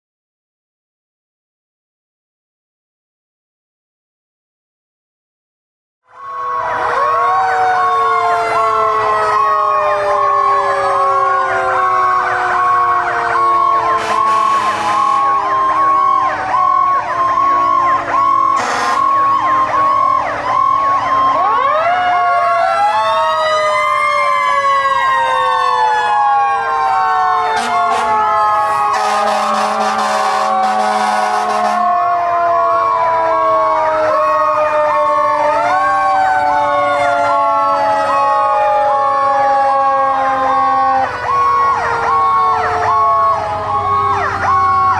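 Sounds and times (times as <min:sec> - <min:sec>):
mechanical sirens wailing: 0:06.0 - 0:44.9
pulsing electronic siren: 0:06.0 - 0:44.9
air horn blasts: 0:14.0 - 0:15.3, 0:18.6 - 0:19.2, 0:28.9 - 0:31.9.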